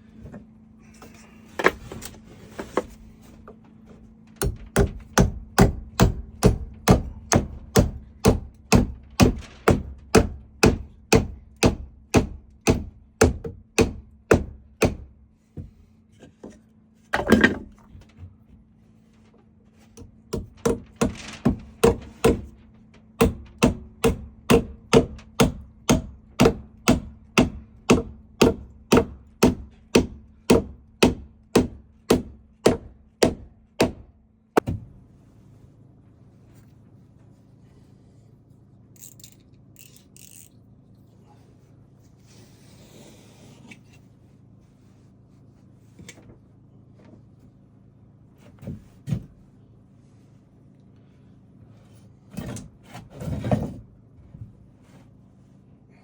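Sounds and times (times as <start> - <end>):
hammering on wood: 4.4 - 15.8, 20.3 - 22.6, 23.2 - 34.9.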